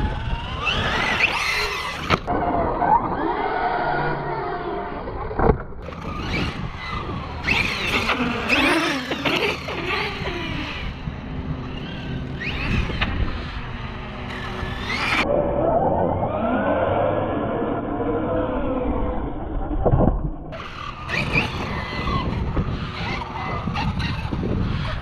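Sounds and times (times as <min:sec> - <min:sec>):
electric motor whining: 0:00.0 - 0:15.3, 0:20.6 - 0:25.0.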